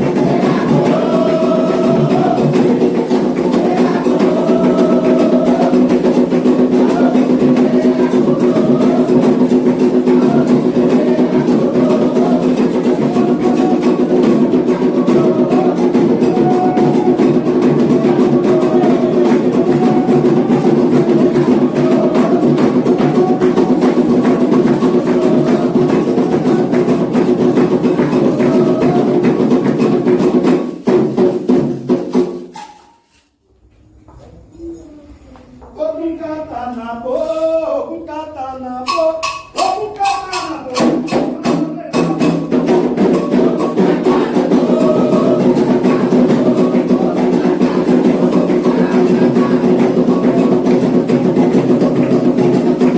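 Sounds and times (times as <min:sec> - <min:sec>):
person singing: 0:00.0 - 0:27.3, 0:27.9 - 0:29.6, 0:34.6 - 0:52.6
hand drums playing: 0:00.0 - 0:32.7, 0:38.8 - 0:52.9
struck bell percussion: 0:38.8 - 0:52.9.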